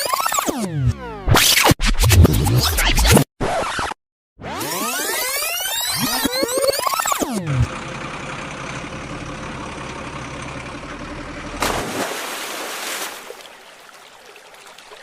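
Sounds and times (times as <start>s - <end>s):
heavy vehicle engine idling: 7.7s - 11.6s.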